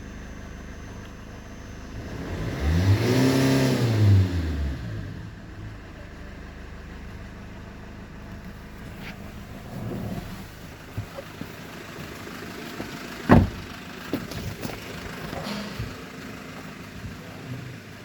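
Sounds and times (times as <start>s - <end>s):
diesel engine idling: 0.0s - 18.0s
loud thump: 13.3s - 14.6s.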